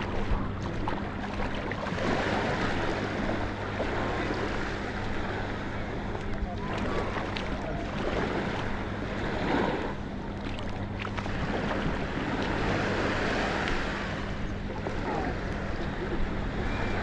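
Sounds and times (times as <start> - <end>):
low steady hum: 0.0 - 17.0
waves washing on shore: 0.0 - 17.0
wind buffeting microphone: 0.0 - 17.0.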